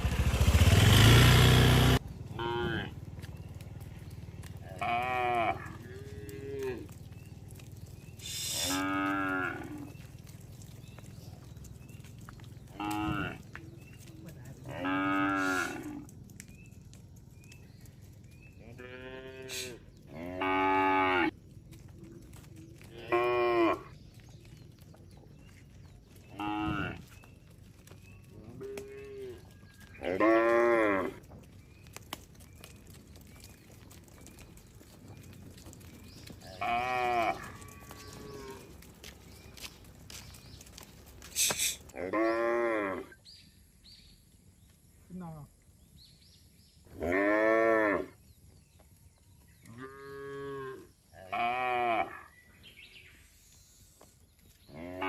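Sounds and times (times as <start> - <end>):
cattle mooing: 2.4 - 3.0, 4.5 - 7.0, 8.5 - 10.0, 12.7 - 13.6, 14.6 - 16.1, 18.7 - 21.3, 26.3 - 27.1, 28.4 - 31.3, 36.4 - 38.9, 41.9 - 43.1, 47.0 - 48.1, 49.8 - 52.3, 54.7 - 55.0.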